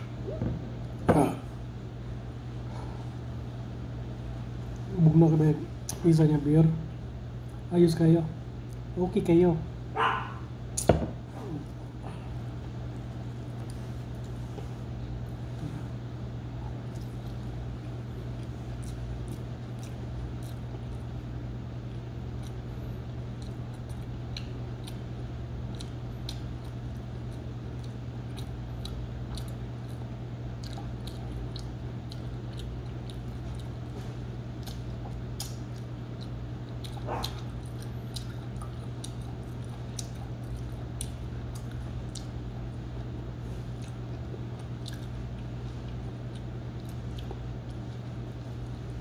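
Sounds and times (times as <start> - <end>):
steady low hum: 0.0 - 49.0
wet chewing sounds: 11.6 - 49.0.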